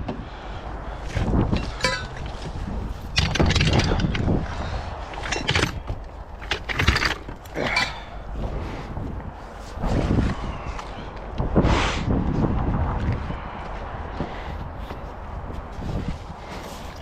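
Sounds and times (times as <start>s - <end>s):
equipment scraping and clattering: 1.1s - 8.9s.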